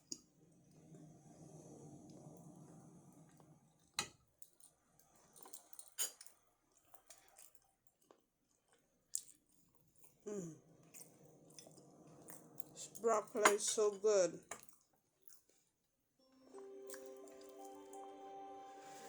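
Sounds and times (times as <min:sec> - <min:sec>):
person chewing food: 0:04.5 - 0:12.8.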